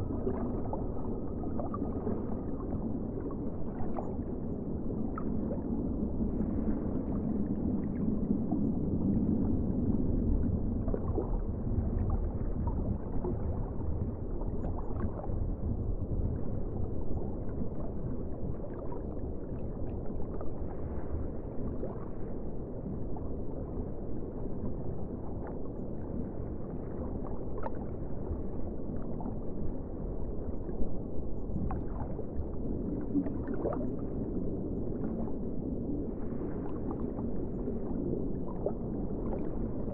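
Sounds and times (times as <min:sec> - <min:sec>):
faint water gurgles: 0:00.0 - 0:39.9
muffled wash of water: 0:00.0 - 0:39.9.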